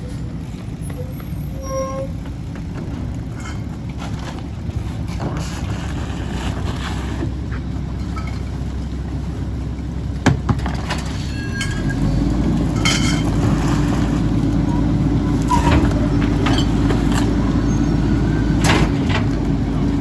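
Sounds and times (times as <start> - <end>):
garbage truck diesel engine running: 0.0 - 20.0
short high squeaks: 0.9 - 2.2.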